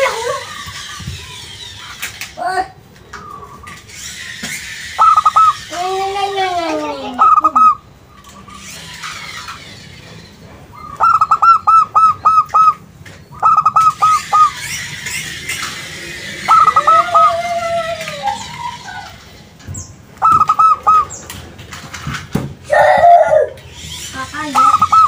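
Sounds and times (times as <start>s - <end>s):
dove staccato cooing: 5.0s - 5.6s, 6.9s - 7.8s, 10.8s - 12.8s, 13.4s - 14.5s, 16.5s - 17.4s, 20.2s - 21.2s.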